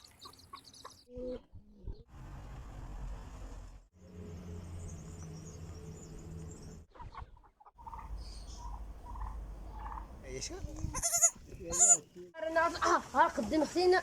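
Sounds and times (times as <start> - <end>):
chickens clucking: 6.9 - 10.2.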